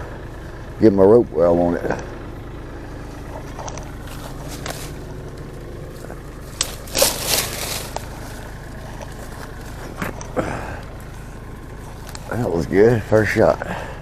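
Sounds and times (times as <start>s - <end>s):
engine idling: 0.0s - 14.0s
ball rustling through foliage: 3.1s - 12.7s.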